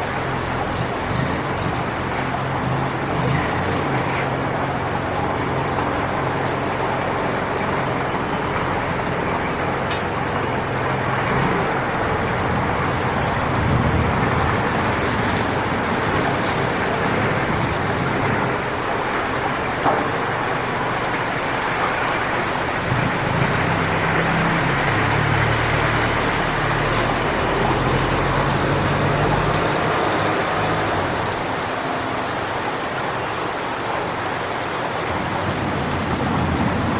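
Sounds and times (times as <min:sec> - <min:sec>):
low rumble of wind gusts: 0:00.0 - 0:36.9
strong wind through palm fronds: 0:00.0 - 0:36.9.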